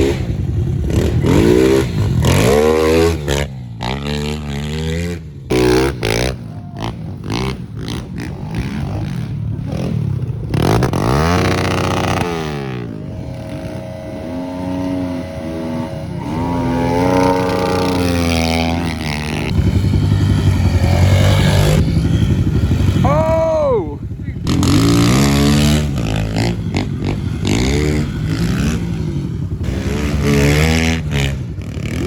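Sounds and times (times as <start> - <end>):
pit bike engines revving: 0.0 - 32.0.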